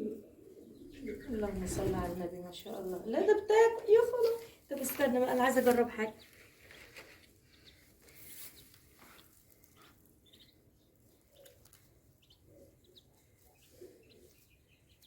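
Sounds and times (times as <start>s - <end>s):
adult birds soft low calls: 0.0s - 15.0s
ducklings peeping: 7.5s - 15.0s.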